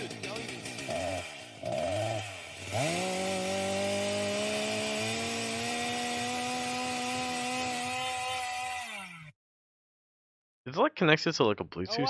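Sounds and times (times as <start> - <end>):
chainsaw engine revving: 0.0 - 9.4.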